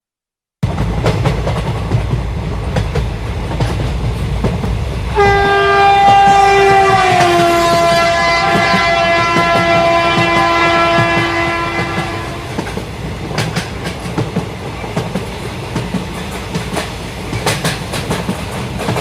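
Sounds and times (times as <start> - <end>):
train rumbling: 0.6 - 19.0
wheels clacking over rail joints: 0.6 - 19.0
locomotive horn blast: 5.1 - 12.7.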